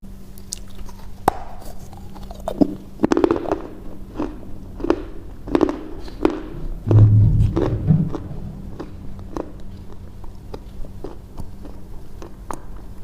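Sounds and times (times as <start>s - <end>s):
faint steady hum: 0.0s - 13.0s
crunchy chewing: 0.3s - 6.7s, 7.4s - 13.0s.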